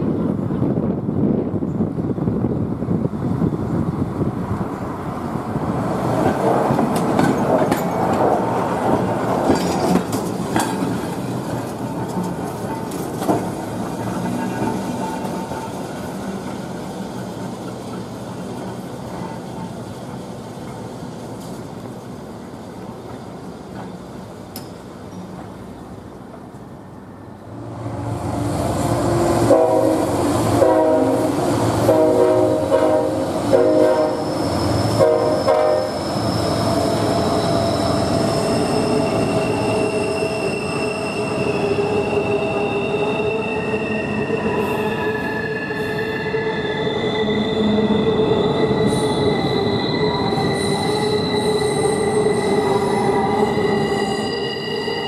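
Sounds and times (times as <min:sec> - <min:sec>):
freight cars rumbling: 0:00.0 - 0:42.8
train horn blasts: 0:29.4 - 0:34.3, 0:34.9 - 0:36.0.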